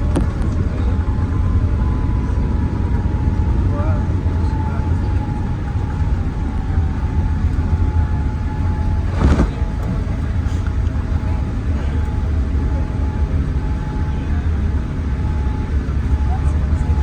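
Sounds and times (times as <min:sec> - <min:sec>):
airliner cabin rumble: 0:00.0 - 0:17.0
brief rush or thump: 0:09.1 - 0:09.8.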